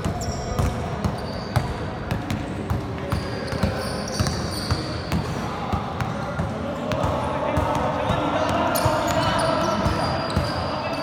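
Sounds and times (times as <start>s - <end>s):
basketball bouncing on court: 0.0s - 10.7s.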